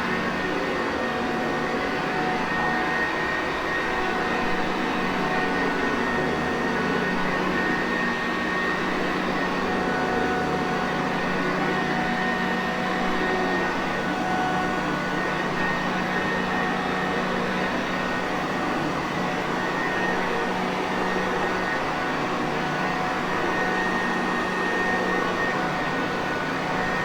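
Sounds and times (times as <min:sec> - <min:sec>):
vacuum cleaner running: 0:22.6 - 0:27.0.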